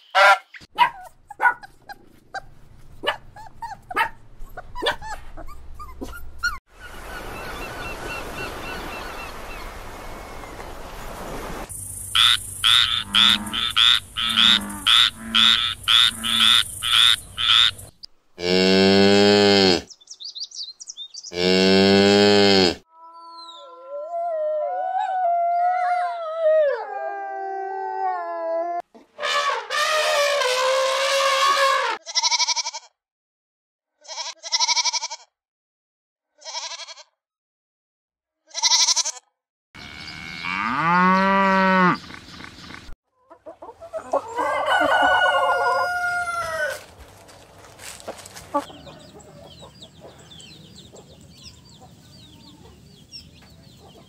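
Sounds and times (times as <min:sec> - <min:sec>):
frog croaking: 0:12.2 - 0:18.8
cow mooing: 0:12.8 - 0:16.6, 0:18.4 - 0:19.9, 0:21.3 - 0:23.2, 0:39.8 - 0:42.0
wolf howling: 0:23.2 - 0:32.0, 0:44.4 - 0:46.8.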